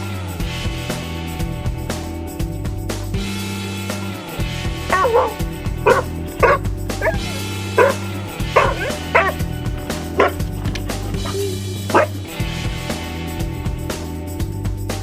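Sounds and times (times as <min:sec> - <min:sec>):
background music with low notes: 0:00.0 - 0:15.0
dog yipping barks: 0:04.9 - 0:12.8.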